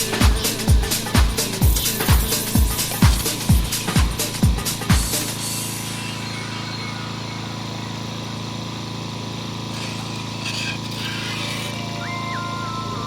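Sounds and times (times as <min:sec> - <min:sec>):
vehicle engine droning: 0:00.0 - 0:13.0
electronic beeping tune: 0:05.6 - 0:08.0, 0:11.8 - 0:13.0.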